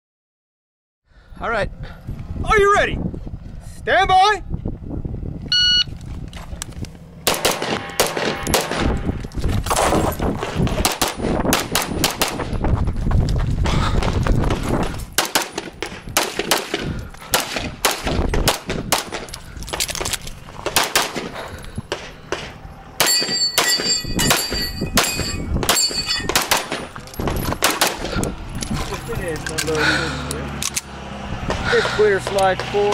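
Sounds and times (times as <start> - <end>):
pistol firing rapid shots: 7.2 - 8.9, 10.7 - 12.5, 15.2 - 19.3, 20.6 - 23.9, 25.0 - 26.9, 27.6 - 28.1
steel targets ringing: 7.6 - 9.2, 23.0 - 26.9.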